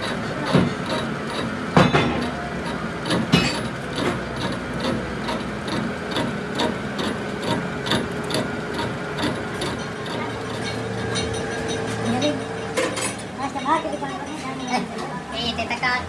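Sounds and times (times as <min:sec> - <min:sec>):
faint machine hum: 0:00.0 - 0:16.0
hammer striking metal: 0:01.8 - 0:02.5, 0:03.1 - 0:04.2.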